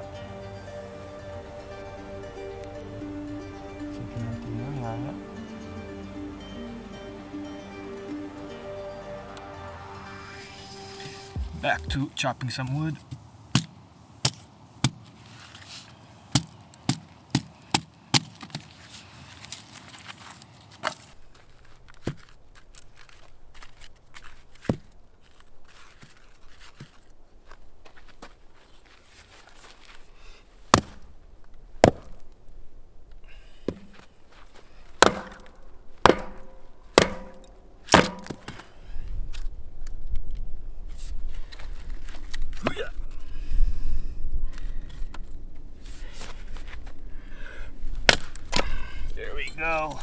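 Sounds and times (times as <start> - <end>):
axe blade striking wood: 30.7 - 31.1, 31.8 - 32.2, 35.0 - 38.6, 48.1 - 48.7.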